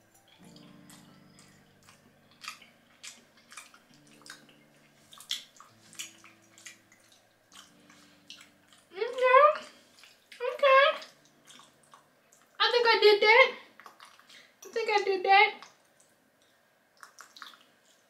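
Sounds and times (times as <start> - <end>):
person chewing: 0.4 - 9.0, 9.6 - 10.4, 11.0 - 12.6, 13.8 - 14.6, 15.6 - 18.0
wet mouth clicks and smacks: 1.4 - 8.8, 13.8 - 14.7, 15.6 - 18.0.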